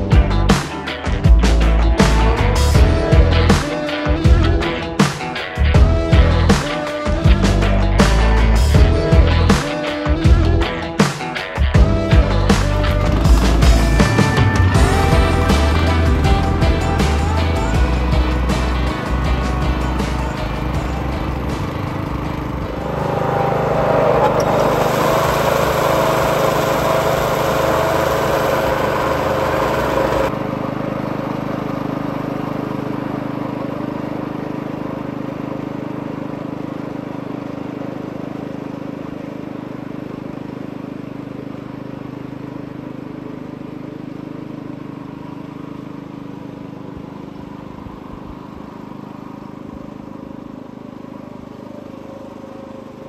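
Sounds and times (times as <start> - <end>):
lawn mower engine hum: 0.0 - 53.0
loud rushing noise: 18.8 - 30.3.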